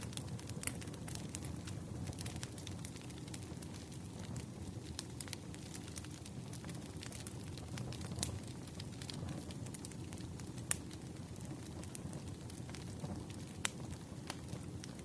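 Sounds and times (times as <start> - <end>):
low fire rumble: 0.0 - 15.0
wood fire crackling and popping: 0.0 - 15.0.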